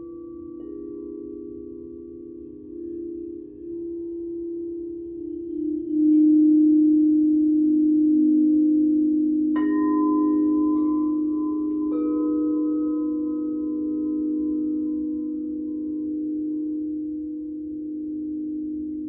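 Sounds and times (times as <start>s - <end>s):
deep singing bowl humming: 0.0s - 19.0s
singing bowl strikes ringing: 5.2s - 17.2s.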